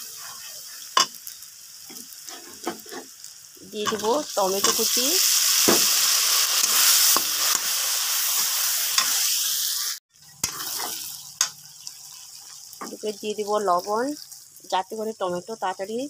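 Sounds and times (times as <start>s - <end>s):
tomatoes sizzling in hot oil: 0.0s - 16.0s
metal spatula scraping a pan: 1.9s - 3.2s, 3.8s - 5.9s, 10.2s - 11.6s.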